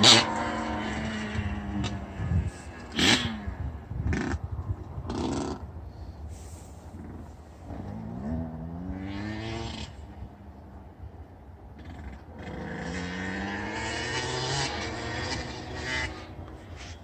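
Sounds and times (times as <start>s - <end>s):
two-stroke engine revving: 0.0s - 4.4s, 7.0s - 10.0s, 11.8s - 16.9s.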